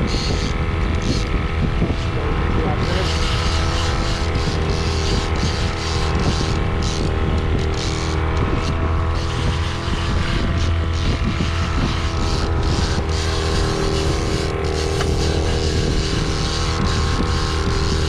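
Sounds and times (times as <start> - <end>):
wind: 0.0 - 18.0
boat engine droning: 10.0 - 18.0.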